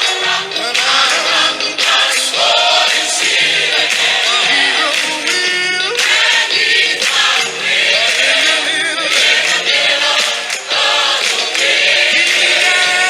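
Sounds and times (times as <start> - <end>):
choir singing gospel: 0.0 - 13.0
musical backing: 0.0 - 13.0.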